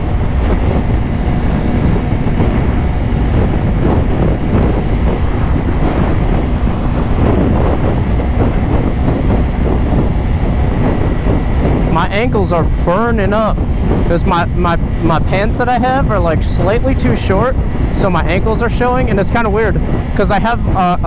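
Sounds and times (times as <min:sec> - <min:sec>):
motorcycle engine running: 0:00.0 - 0:12.1
wind buffeting microphone: 0:00.0 - 0:21.0.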